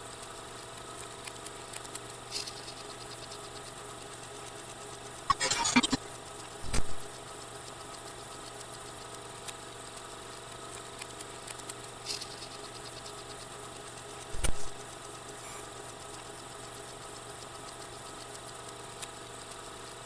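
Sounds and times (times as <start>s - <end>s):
faint clicks: 0.1s - 20.0s
machine hum with tones: 5.2s - 7.4s, 11.0s - 19.1s.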